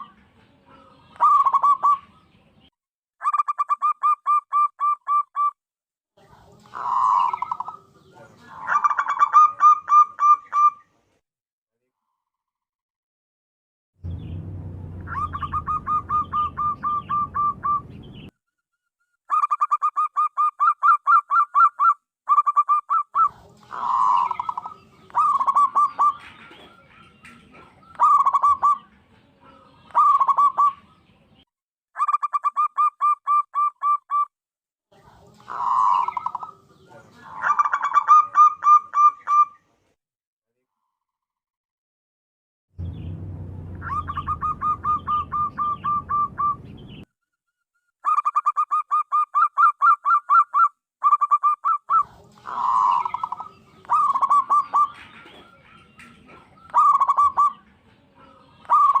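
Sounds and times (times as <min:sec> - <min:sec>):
dove cooing: 0:00.0 - 0:02.2, 0:06.7 - 0:10.8, 0:15.1 - 0:18.0, 0:19.3 - 0:30.9, 0:35.4 - 0:39.6, 0:43.8 - 0:46.7, 0:48.1 - 0:59.0
low hum: 0:14.0 - 0:18.3, 0:42.8 - 0:47.0.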